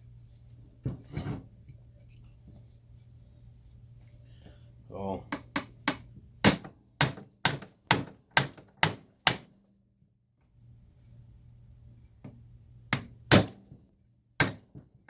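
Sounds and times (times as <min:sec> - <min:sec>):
hammer striking metal: 0:05.6 - 0:09.5, 0:13.3 - 0:13.7, 0:14.4 - 0:14.7.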